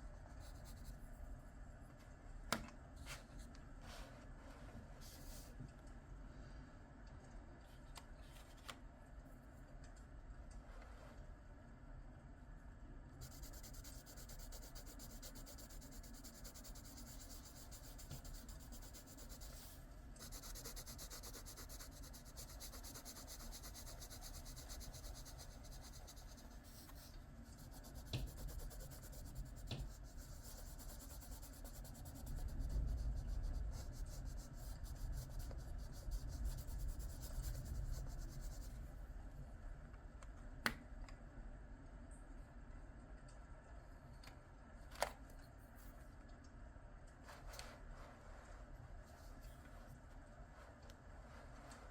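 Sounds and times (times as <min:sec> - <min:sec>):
pencil shading on paper: 0:13.2 - 0:38.7.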